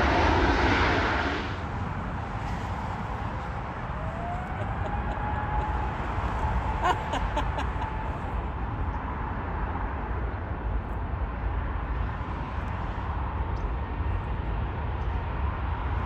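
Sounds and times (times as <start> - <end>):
faint high whine: 0.0 - 6.9
jet engines rumbling: 0.0 - 16.0.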